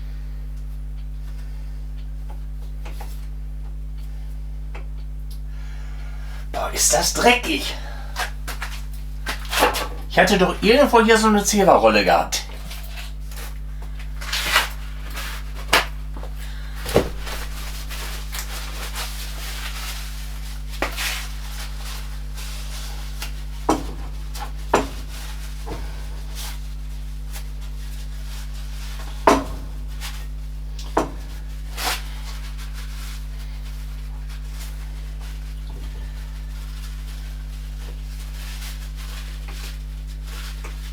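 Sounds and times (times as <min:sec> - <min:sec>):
steady low hum: 0:00.0 - 0:22.1.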